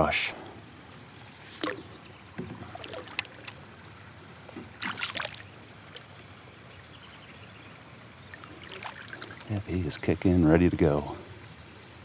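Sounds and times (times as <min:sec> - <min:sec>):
water splashing beside a kayak: 0:01.5 - 0:06.5, 0:08.2 - 0:09.6.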